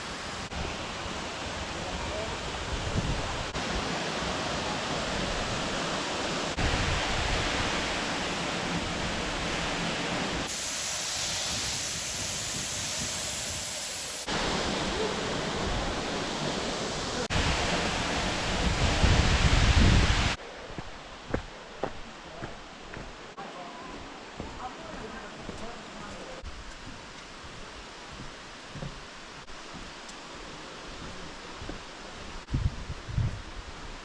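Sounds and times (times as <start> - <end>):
waterfall roaring: 14.2 - 19.4.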